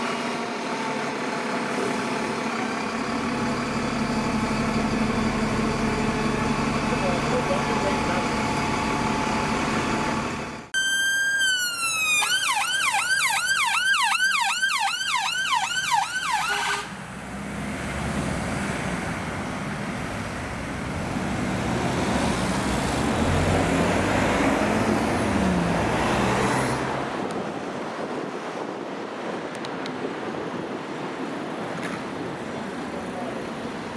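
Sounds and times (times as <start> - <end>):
vehicle engine passing: 0.0 - 10.7, 16.8 - 27.3
emergency siren yelping: 7.8 - 16.9.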